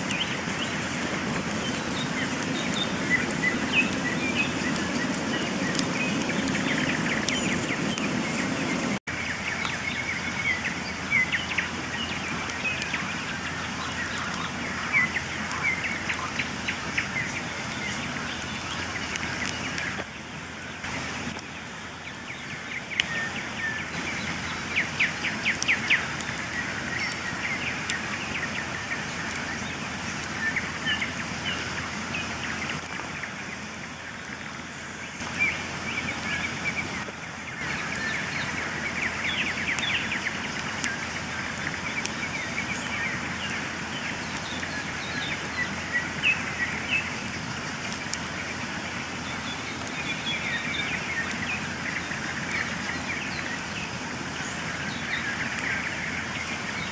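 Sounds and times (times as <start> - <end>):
birds singing: 0.0 - 56.9
campfire crackling and popping: 0.0 - 56.9.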